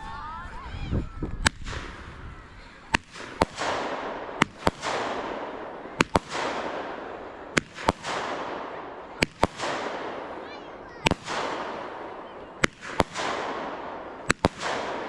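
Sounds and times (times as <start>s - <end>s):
fireworks bangs with crackle: 1.4s - 15.0s.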